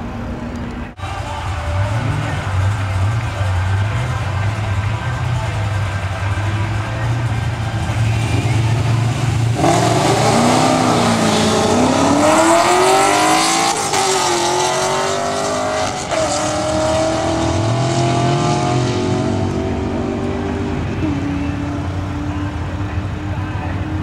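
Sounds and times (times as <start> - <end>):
car engines idling: 0.0 - 24.0
cars accelerating at full throttle: 0.0 - 24.0.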